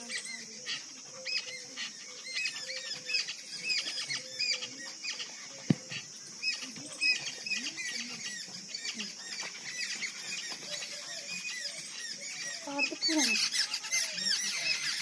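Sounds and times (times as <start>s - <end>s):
high insect hiss: 0.0s - 15.0s
small birds chirping: 0.0s - 15.0s
sharp thump: 5.7s - 5.9s.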